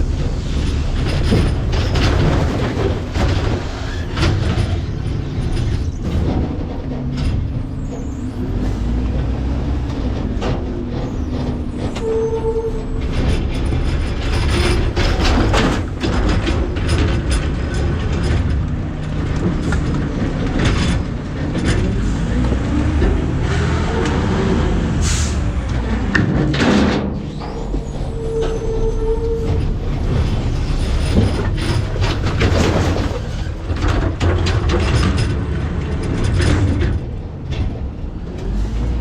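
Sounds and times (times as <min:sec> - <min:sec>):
garbage truck packer crushing trash: 0:00.2 - 0:12.0, 0:29.5 - 0:37.8
cracks knocks and clanks: 0:00.7 - 0:09.0, 0:13.0 - 0:23.4, 0:25.7 - 0:28.0, 0:29.4 - 0:38.6.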